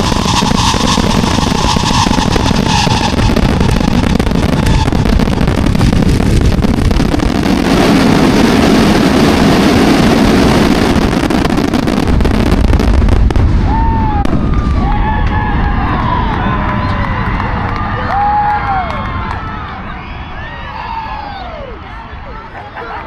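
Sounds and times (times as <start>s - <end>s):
fireworks booming and crackling: 0.0s - 18.8s.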